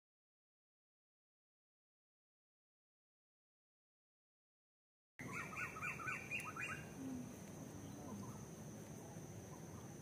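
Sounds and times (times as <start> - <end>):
bird chirping: 5.2 - 8.5
low background noise: 5.2 - 10.0.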